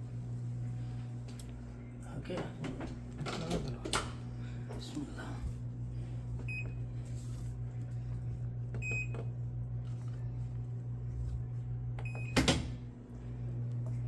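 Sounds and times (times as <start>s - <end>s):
low electrical hum: 0.0s - 14.0s
washing machine control panel beeping: 6.5s - 6.8s, 8.8s - 9.3s, 12.0s - 12.8s.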